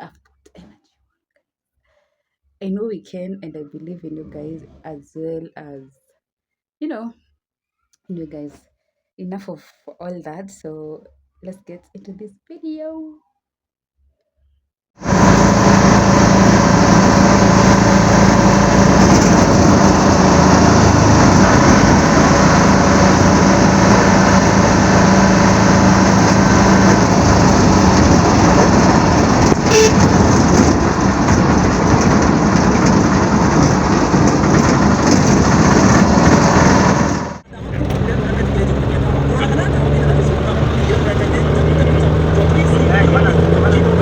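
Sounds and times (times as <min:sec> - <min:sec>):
vehicle engine and road noise: 0:15.0 - 0:44.0.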